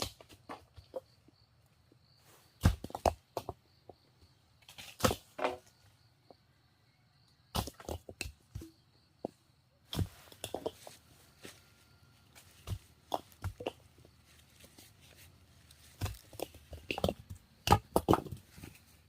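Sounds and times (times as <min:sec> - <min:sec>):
insect trill: 0:00.0 - 0:08.0
knocks and cracks of wood: 0:02.6 - 0:03.6, 0:04.6 - 0:05.8, 0:15.7 - 0:18.8.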